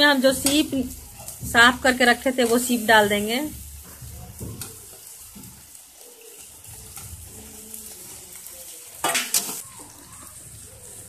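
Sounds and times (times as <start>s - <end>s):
food sizzling in hot oil: 0.0s - 11.0s
metal spatula clattering on pan: 0.3s - 5.6s, 9.0s - 10.4s.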